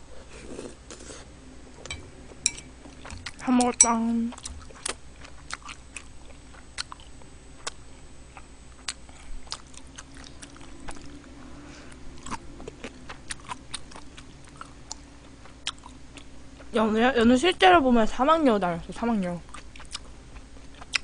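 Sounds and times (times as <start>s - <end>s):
chewing crunchy kimchi: 4.2s - 11.3s, 11.9s - 16.7s, 19.4s - 21.0s.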